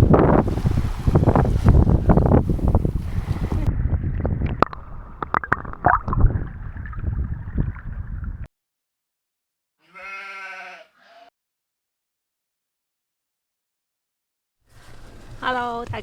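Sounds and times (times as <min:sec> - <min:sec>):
water gurgling and sloshing: 0:00.0 - 0:08.5
sheep bleating: 0:09.8 - 0:11.3.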